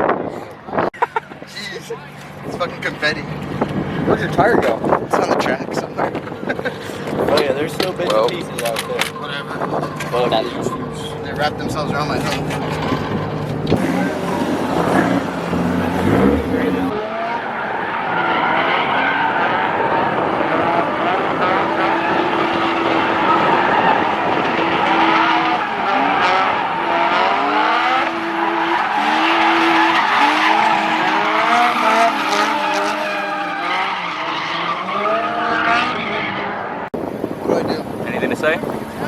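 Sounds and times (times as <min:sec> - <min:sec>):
car engines revving: 0:00.0 - 0:39.0
tyres squealing and skidding: 0:08.4 - 0:36.9.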